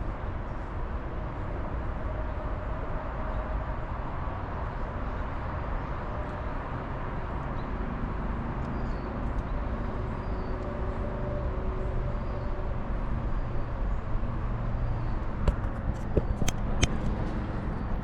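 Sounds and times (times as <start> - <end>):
sharp clicks: 15.5 - 17.2.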